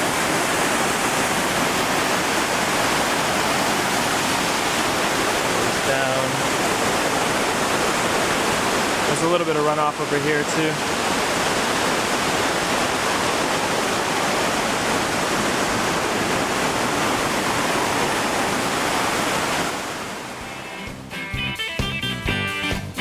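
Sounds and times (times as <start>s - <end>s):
waterfall rushing: 0.0s - 21.6s
guitar music: 20.3s - 23.0s.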